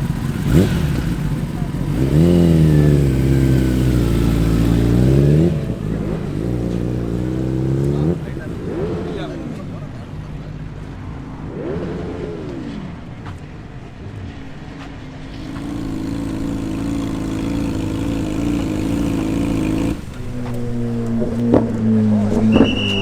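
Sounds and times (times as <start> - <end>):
motorbike engine revving: 0.0 - 9.7, 15.4 - 22.4.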